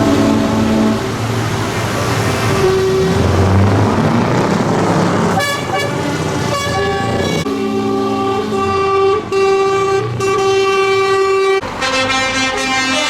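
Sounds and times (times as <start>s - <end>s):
horns tooting: 0.0s - 1.4s, 2.5s - 3.5s, 5.3s - 13.0s
tractor engines running: 0.0s - 13.0s.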